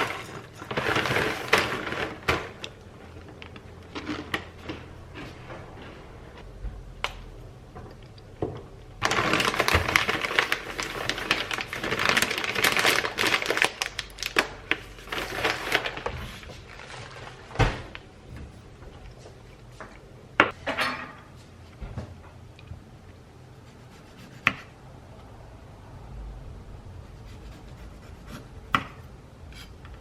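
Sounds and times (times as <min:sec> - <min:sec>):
dense clattering and rustling: 0:00.0 - 0:06.4.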